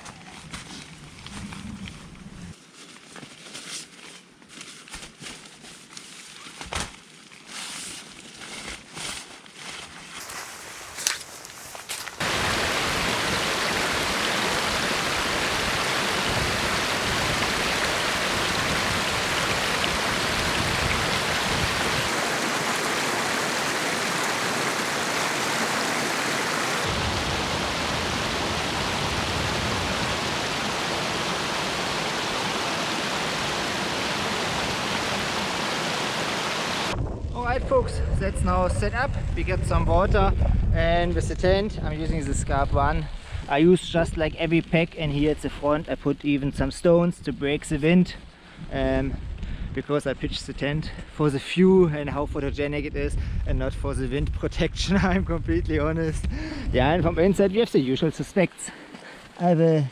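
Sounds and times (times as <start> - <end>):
storm wind and driving snow: 10.2 - 43.6.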